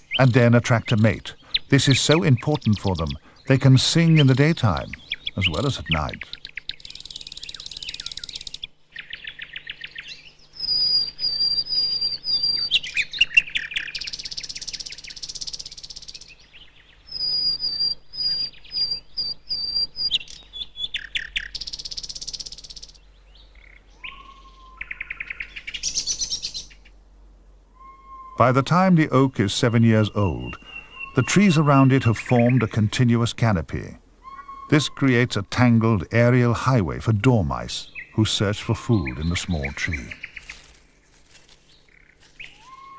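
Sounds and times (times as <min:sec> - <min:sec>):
nightingale singing: 0:00.0 - 0:27.0, 0:27.7 - 0:42.9.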